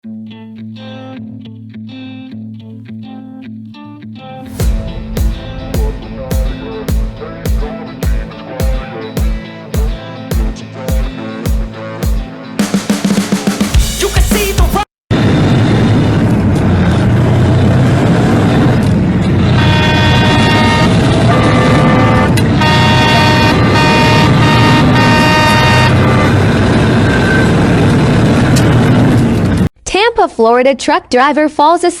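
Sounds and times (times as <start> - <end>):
vehicle road and engine noise: 15.3 - 29.7
horn blasts: 19.5 - 27.6.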